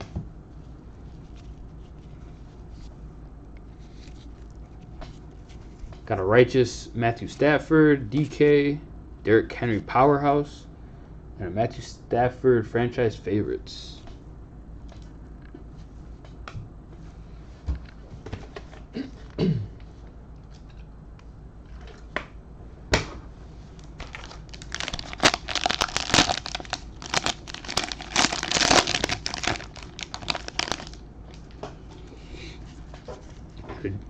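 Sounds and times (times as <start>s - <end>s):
plastic wrapper crinkling and tearing: 23.8s - 31.5s.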